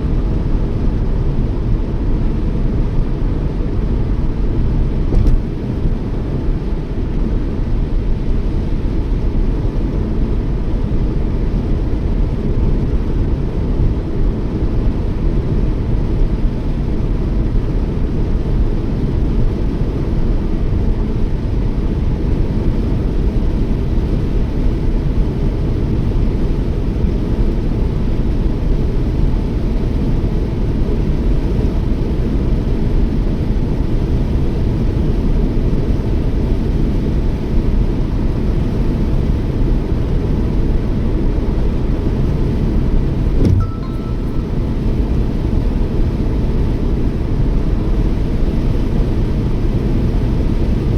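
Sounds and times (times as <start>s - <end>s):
car tyre and engine rumble: 4.9s - 6.1s.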